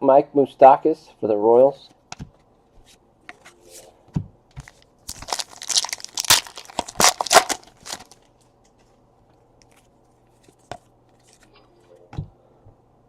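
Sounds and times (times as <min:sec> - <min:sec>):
card pack wrapper tearing: 0:04.7 - 0:08.3.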